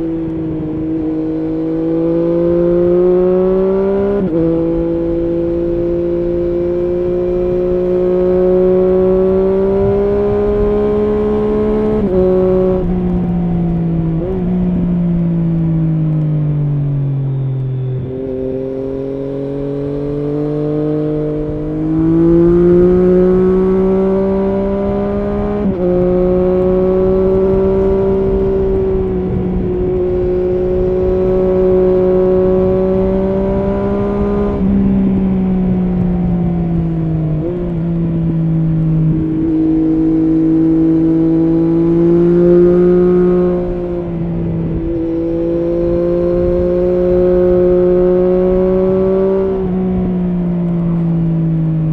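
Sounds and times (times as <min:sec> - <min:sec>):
motorcycle engine running: 0:19.8 - 0:51.9.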